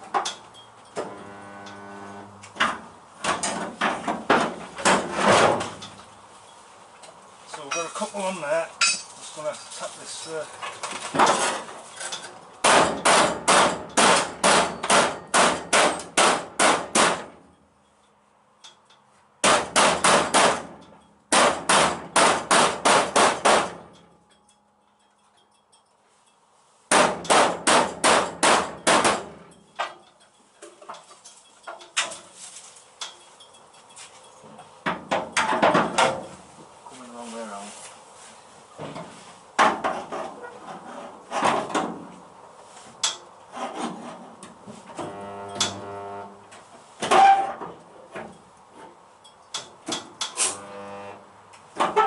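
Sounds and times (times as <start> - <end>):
hammer striking sheet metal: 12.6 - 17.3, 19.4 - 24.0, 26.9 - 29.4.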